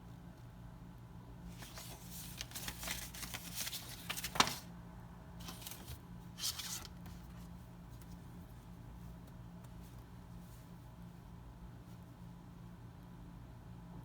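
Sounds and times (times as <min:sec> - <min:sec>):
low steady hum: 0:00.0 - 0:14.0
packaging rustling and scraping: 0:01.5 - 0:04.7, 0:05.4 - 0:07.3.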